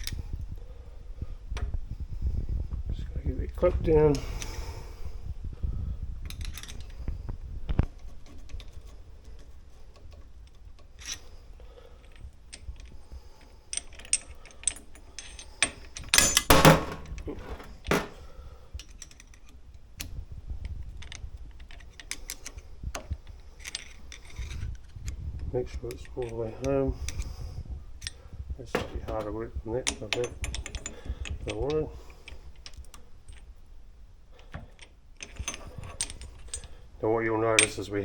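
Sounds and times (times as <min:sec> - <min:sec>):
metal parts and tools clinking: 0:12.0 - 0:18.2, 0:23.5 - 0:24.7, 0:28.0 - 0:33.5, 0:34.4 - 0:36.8, 0:37.5 - 0:38.0
knocks: 0:16.5 - 0:18.2.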